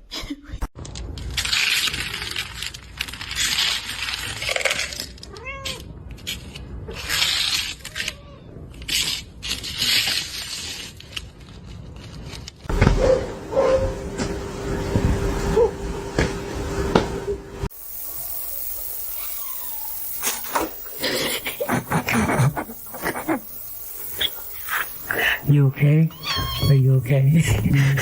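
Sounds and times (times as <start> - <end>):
cat meowing: 5.3 - 5.9, 7.8 - 8.6, 19.2 - 20.0, 26.1 - 26.8
cat hissing: 19.0 - 26.9.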